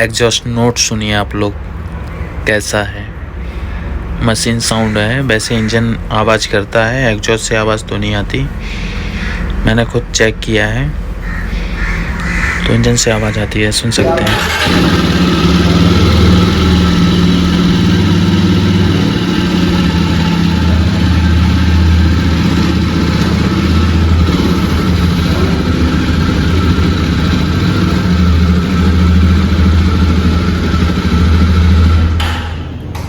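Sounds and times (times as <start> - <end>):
motorcycle engine idling: 14.3 - 32.2.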